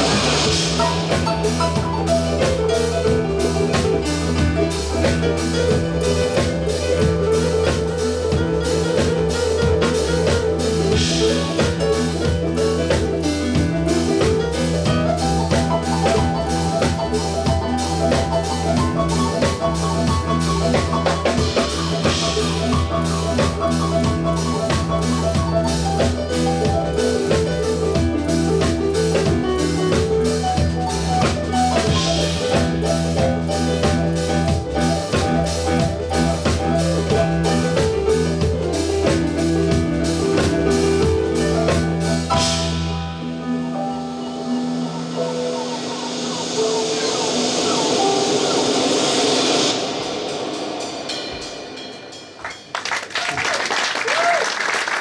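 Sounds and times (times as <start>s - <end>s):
melodic lead line: 0.0s - 43.4s
bass: 0.0s - 51.9s, 52.6s - 55.0s
drum kit: 0.0s - 55.0s.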